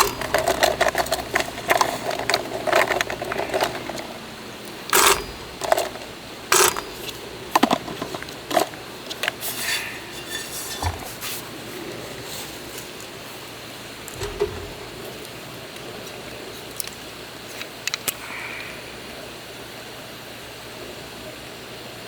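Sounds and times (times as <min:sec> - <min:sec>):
metal cooking gear clinking: 0:00.0 - 0:09.4, 0:14.1 - 0:15.2.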